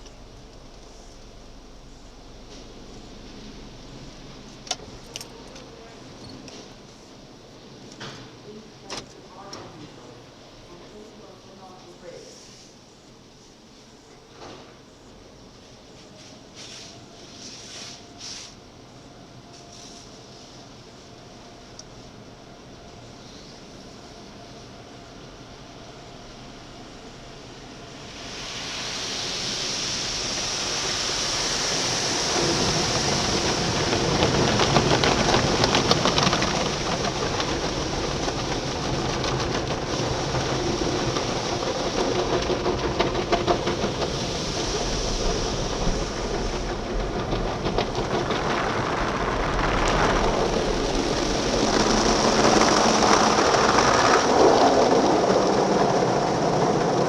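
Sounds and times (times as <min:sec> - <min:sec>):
car wash water spraying: 0:28.0 - 0:57.0.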